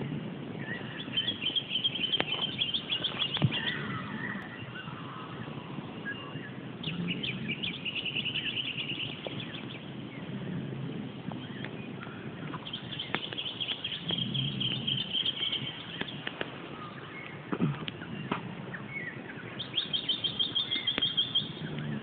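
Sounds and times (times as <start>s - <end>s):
birds chirping trills: 0.0s - 22.0s.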